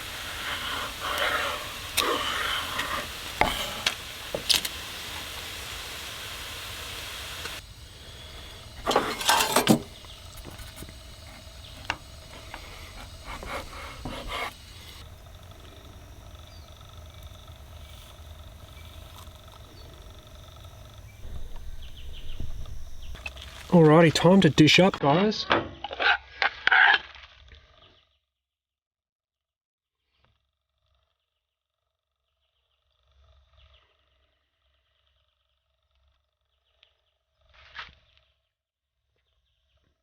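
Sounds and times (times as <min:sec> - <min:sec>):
handling clatter: 0:00.0 - 0:15.9
bacon sizzling in a frying pan: 0:00.0 - 0:25.0
utensil clicking against pan: 0:00.0 - 0:25.0.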